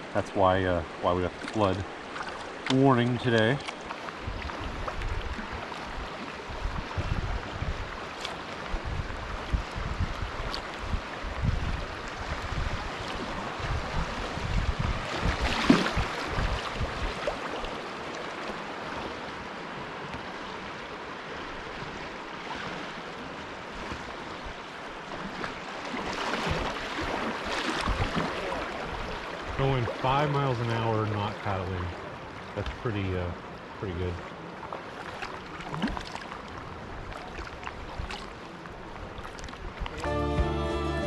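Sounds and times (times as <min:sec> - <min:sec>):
river water splashing and rushing: 0:00.0 - 0:41.0
wind buffeting microphone: 0:04.2 - 0:08.0, 0:08.7 - 0:17.2.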